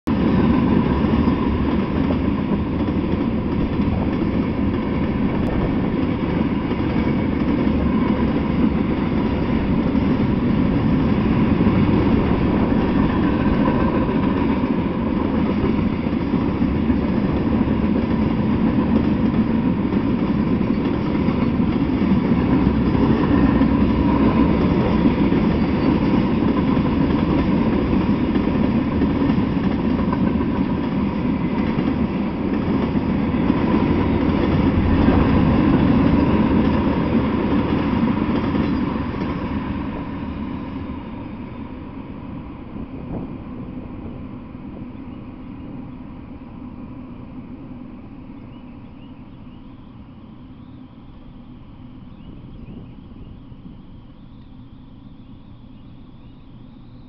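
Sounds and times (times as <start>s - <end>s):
steel wheels rolling on rails: 0.1s - 44.2s.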